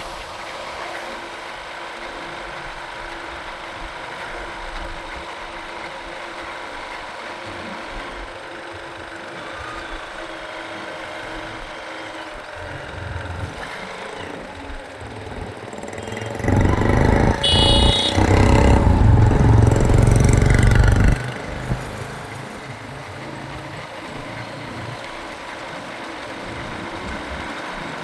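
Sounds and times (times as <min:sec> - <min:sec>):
road and traffic noise: 0:00.0 - 0:28.0
motorcycle engine hum: 0:07.6 - 0:28.0
steady tones: 0:14.6 - 0:22.0.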